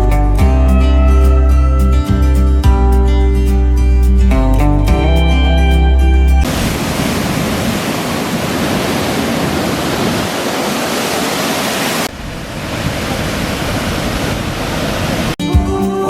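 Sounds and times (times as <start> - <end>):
water rushing and pouring: 6.4 - 15.4.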